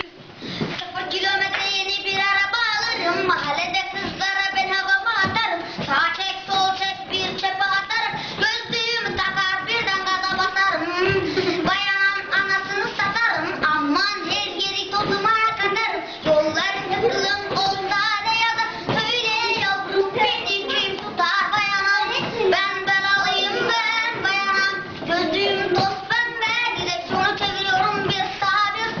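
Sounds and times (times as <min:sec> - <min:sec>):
young woman singing: 0:00.0 - 0:29.0.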